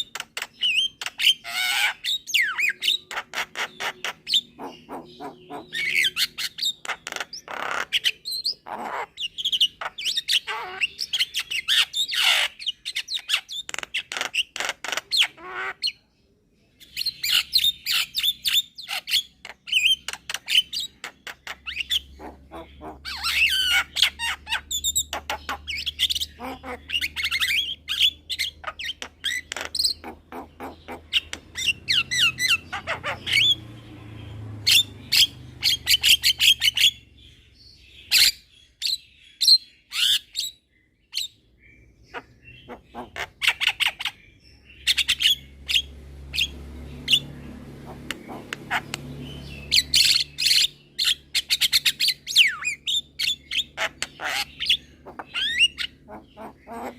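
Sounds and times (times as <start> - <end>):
myna calling: 1.4 - 11.1, 20.9 - 33.8, 42.1 - 44.1, 44.9 - 51.5, 53.7 - 56.9.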